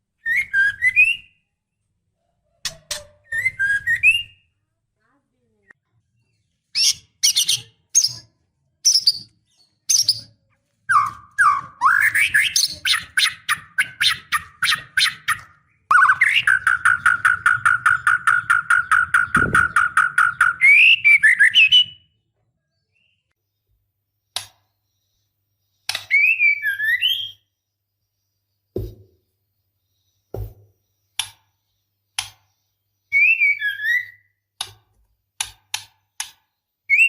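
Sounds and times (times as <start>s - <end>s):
bird calling with rattling chatter: 12.1s - 21.6s.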